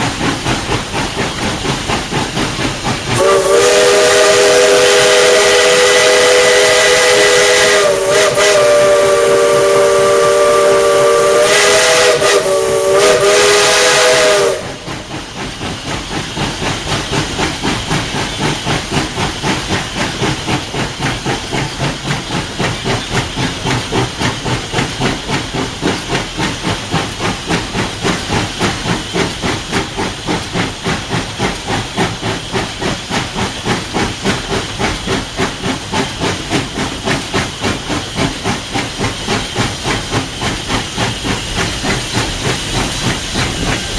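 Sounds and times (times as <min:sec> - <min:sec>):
hiss of steam: 0:00.0 - 0:43.9
steam engine exhaust chuffing: 0:00.0 - 0:43.9
steam whistle chord: 0:03.2 - 0:14.8.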